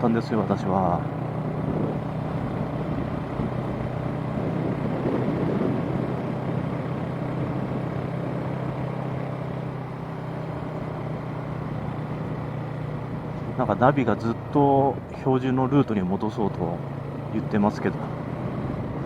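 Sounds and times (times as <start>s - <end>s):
motorcycle engine cruising: 0.0s - 19.0s
wind noise: 1.6s - 8.0s, 18.6s - 19.0s.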